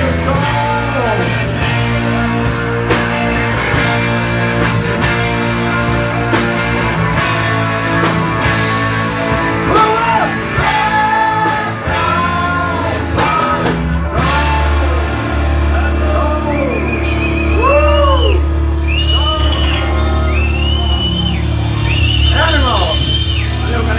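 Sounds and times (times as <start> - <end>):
person singing: 0.0 - 1.8, 9.6 - 18.4
rock band playing: 0.0 - 23.9
wailing guitar notes: 0.0 - 23.9.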